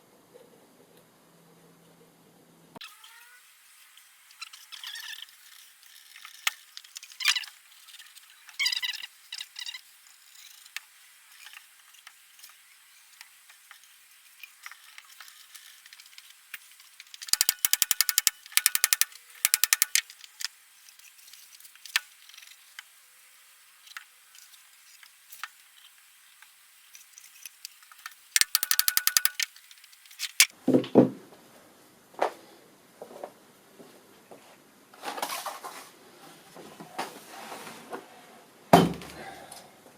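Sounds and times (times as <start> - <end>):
wood knocking and clattering: 30.7 - 31.2.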